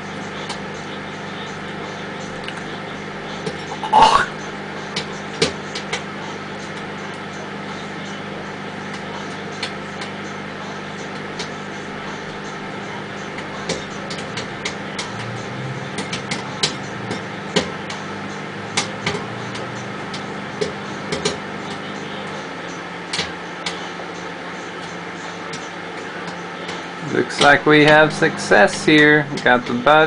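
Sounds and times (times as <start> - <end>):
microwave oven hum: 0.0 - 30.0
popcorn popping: 11.0 - 23.8, 24.8 - 30.0.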